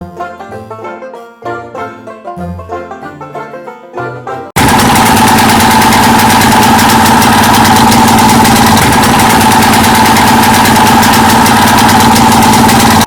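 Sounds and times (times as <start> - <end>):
single-cylinder engine running: 4.6 - 13.0.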